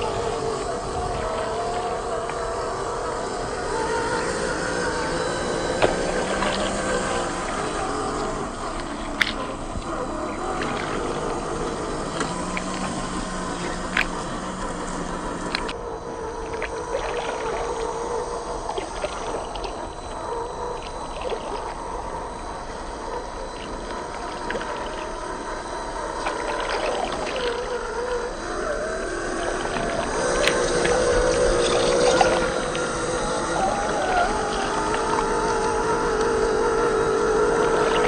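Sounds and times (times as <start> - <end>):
electric motor and gear whine: 0.0 - 38.0.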